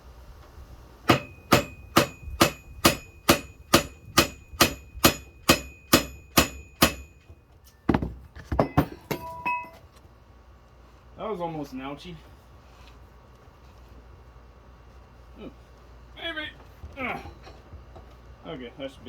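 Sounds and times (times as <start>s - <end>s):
hammer striking metal: 1.1s - 7.3s.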